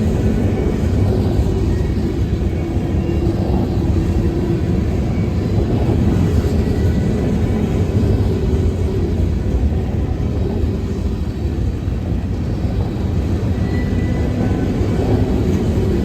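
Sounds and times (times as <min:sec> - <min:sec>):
freight train rumbling: 0:00.0 - 0:16.0
faint thin squeals: 0:13.4 - 0:14.6.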